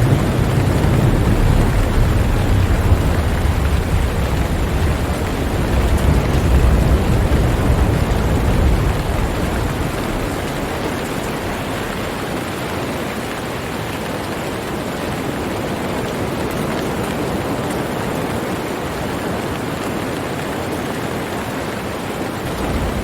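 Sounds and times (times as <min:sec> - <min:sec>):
thunder rumbling: 0:00.0 - 0:13.6, 0:22.4 - 0:23.0
steady rain hiss: 0:00.0 - 0:23.0.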